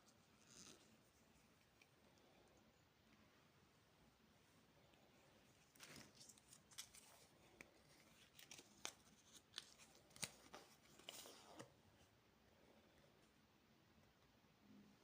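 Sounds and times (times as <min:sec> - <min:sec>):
packaging crinkling and tearing: 0:05.7 - 0:11.5.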